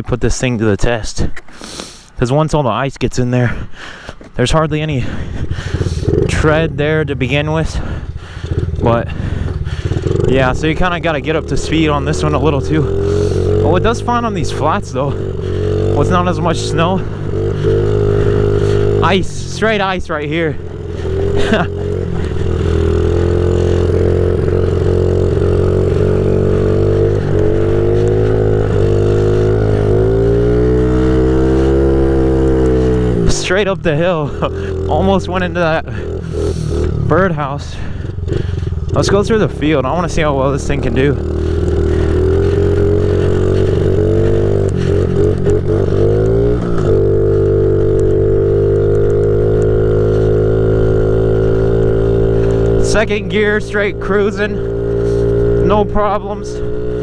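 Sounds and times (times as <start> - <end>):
small motorcycle engine running: 5.0 - 57.0.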